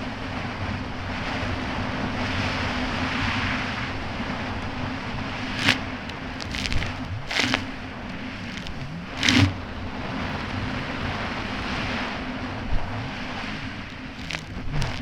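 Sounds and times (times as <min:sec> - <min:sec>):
hull splashing on water: 0:05.6 - 0:09.6.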